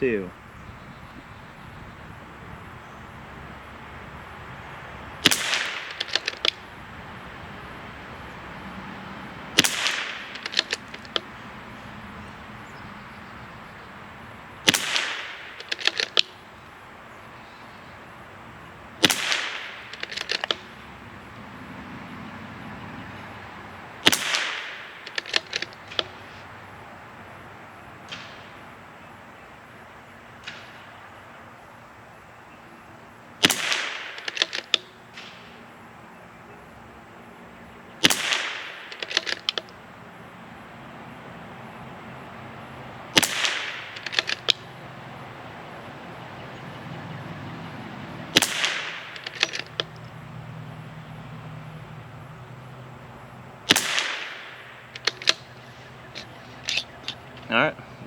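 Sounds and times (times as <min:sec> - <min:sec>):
rifle bolt metallic clicks: 0:05.2 - 0:06.6, 0:09.6 - 0:11.4, 0:14.6 - 0:16.5, 0:19.0 - 0:20.8, 0:24.0 - 0:26.4, 0:33.4 - 0:35.4, 0:38.0 - 0:39.8, 0:43.1 - 0:44.8, 0:48.3 - 0:50.2, 0:53.7 - 0:57.5
rifle shots: 0:05.2 - 0:06.8, 0:09.5 - 0:11.5, 0:14.6 - 0:16.6, 0:19.0 - 0:21.0, 0:24.0 - 0:26.4, 0:33.4 - 0:35.5, 0:38.0 - 0:39.8, 0:43.1 - 0:44.8, 0:48.2 - 0:50.0, 0:53.7 - 0:57.7.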